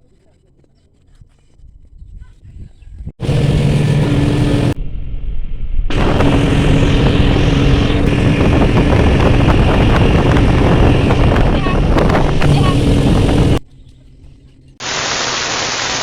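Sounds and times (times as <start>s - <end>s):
wind noise on microphone: 1.0s - 13.6s
engine running at speed: 3.2s - 4.8s, 5.9s - 13.6s.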